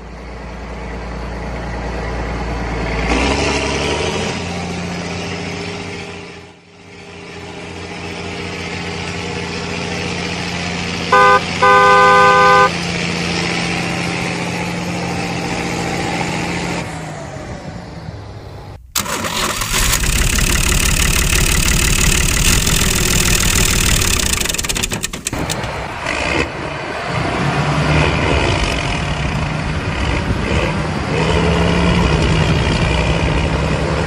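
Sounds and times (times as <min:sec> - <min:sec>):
tractor engine running: 0:06.8 - 0:15.8, 0:18.5 - 0:26.8
horn honking: 0:11.1 - 0:12.8.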